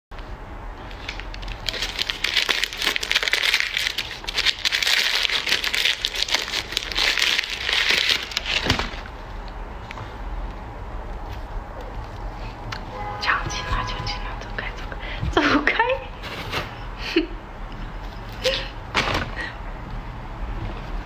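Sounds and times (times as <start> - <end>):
plastic packaging crinkling: 0.8 - 9.6.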